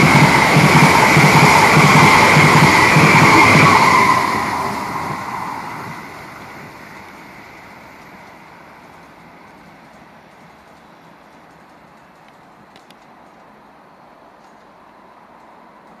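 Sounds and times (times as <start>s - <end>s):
high-speed train rushing past: 0.0s - 12.7s
faint background noise: 3.8s - 16.0s.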